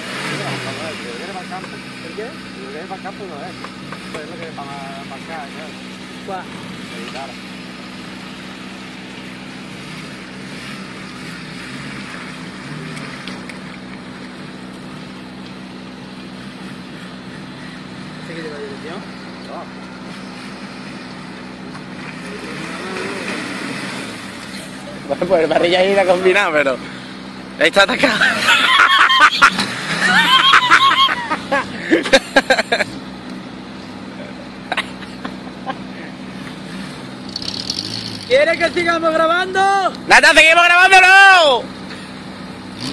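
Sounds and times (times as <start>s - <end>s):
vehicle driving through mud and water: 0.0s - 42.9s
vehicle engine running: 0.0s - 42.9s
high yells: 28.4s - 31.6s, 39.4s - 41.6s.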